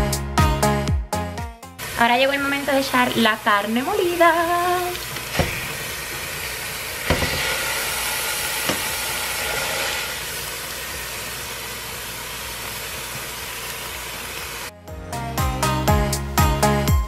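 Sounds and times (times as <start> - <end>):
food sizzling in a pot: 1.8 - 14.7.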